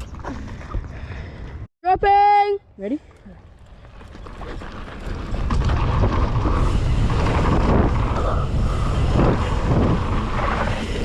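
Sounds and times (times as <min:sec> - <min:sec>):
bike rolling over dirt: 0:03.4 - 0:11.0
wind buffeting microphone: 0:04.0 - 0:11.0.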